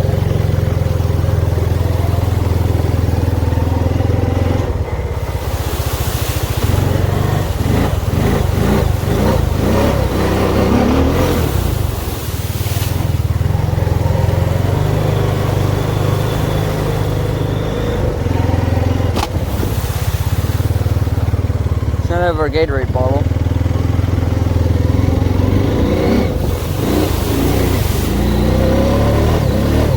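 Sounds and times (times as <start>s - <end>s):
atv engine running: 0.0s - 29.9s
wind and terrain noise: 0.0s - 29.9s
sharp knock: 19.1s - 19.5s.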